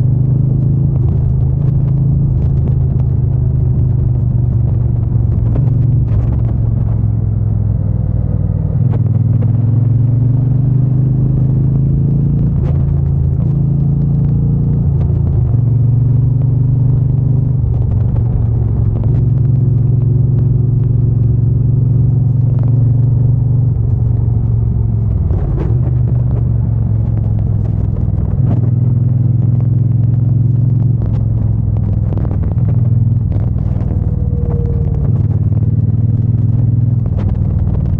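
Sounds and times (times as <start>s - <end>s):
motorcycle engine accelerating: 0.0s - 37.9s.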